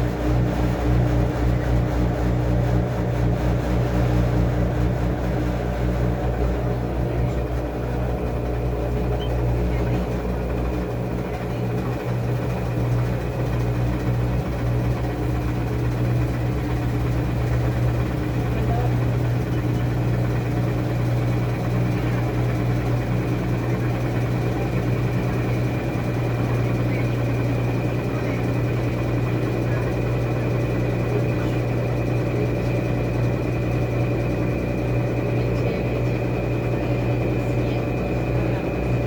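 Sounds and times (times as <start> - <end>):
washing machine running: 0.0 - 39.0.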